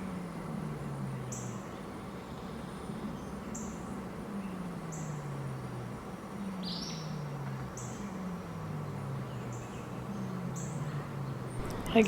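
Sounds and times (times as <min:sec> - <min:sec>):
birds chirping: 0:06.3 - 0:12.0
low hum sliding down: 0:11.5 - 0:12.0.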